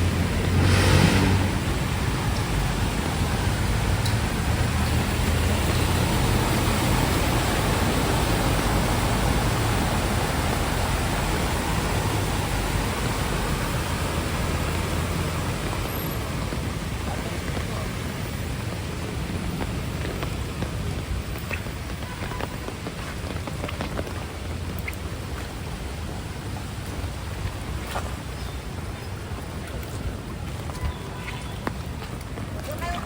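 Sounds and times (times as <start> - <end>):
heavy rain falling: 0.0 - 33.0
traffic rumble: 0.0 - 33.0.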